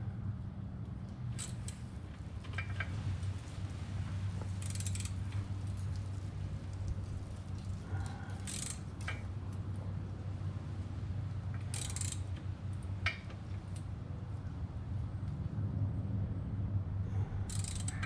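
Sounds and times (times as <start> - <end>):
steady low hum: 0.0 - 18.0
metallic rasps: 17.5 - 18.0.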